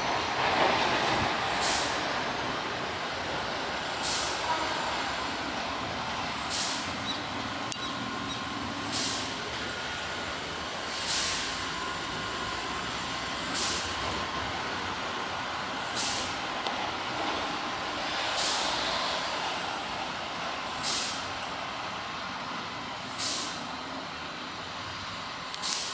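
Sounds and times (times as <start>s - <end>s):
steady background noise: 0.0s - 25.9s
short air hisses: 1.6s - 2.0s, 4.0s - 4.5s, 6.5s - 7.0s, 8.9s - 9.4s, 10.9s - 11.6s, 13.5s - 13.9s, 16.0s - 16.4s, 18.2s - 18.9s, 20.8s - 21.3s, 23.1s - 23.6s, 25.6s - 25.9s.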